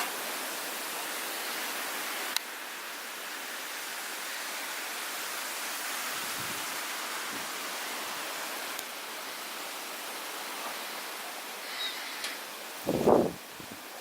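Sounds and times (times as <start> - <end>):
blizzard wind rushing: 12.7 - 13.8.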